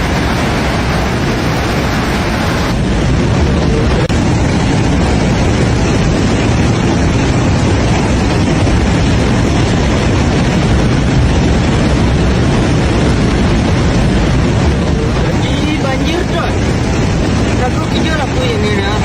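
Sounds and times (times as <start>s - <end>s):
floodwater roaring: 0.0s - 19.0s.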